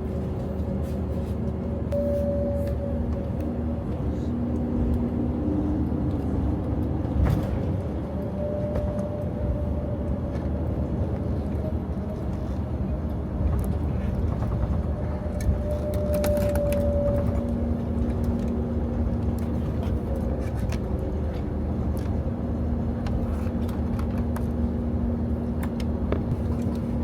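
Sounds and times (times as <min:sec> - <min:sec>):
aircraft cabin low rumble: 0:00.0 - 0:27.0
faint held tones: 0:01.9 - 0:03.8.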